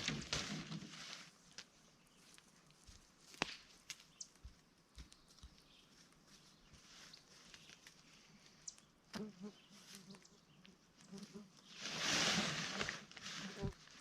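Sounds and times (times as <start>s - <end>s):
tent fabric rustling: 11.6s - 14.0s.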